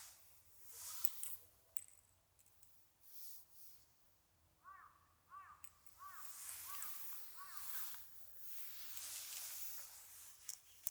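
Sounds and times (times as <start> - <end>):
faint rustling hiss: 0.0 - 4.0, 5.8 - 10.9
bird calling clear notes: 4.6 - 8.0.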